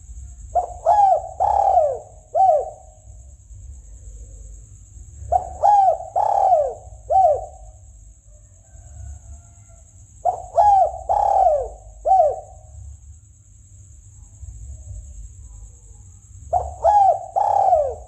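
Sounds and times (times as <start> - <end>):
dove cooing: 0.0 - 3.1, 5.2 - 7.9, 10.2 - 12.8, 16.5 - 18.0.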